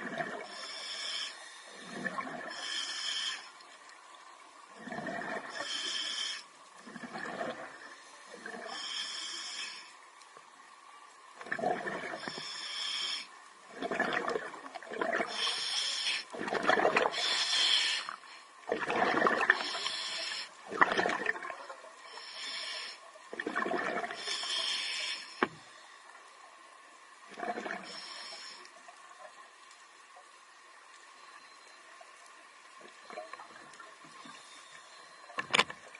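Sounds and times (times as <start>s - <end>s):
diver breathing through regulator: 0.3s - 3.6s, 4.9s - 6.5s, 7.9s - 10.0s, 12.1s - 13.4s, 15.2s - 16.4s, 17.0s - 18.5s, 19.5s - 20.6s, 22.1s - 23.0s, 24.0s - 25.7s, 27.7s - 28.7s.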